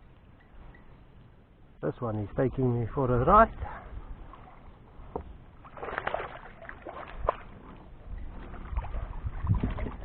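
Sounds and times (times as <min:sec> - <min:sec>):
water sloshing and splashing: 0:04.2 - 0:10.0.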